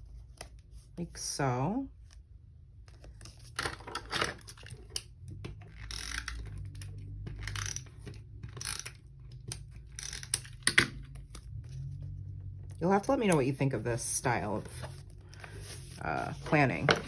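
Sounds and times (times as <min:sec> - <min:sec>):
paper rustling and crinkling: 0:14.4 - 0:17.0.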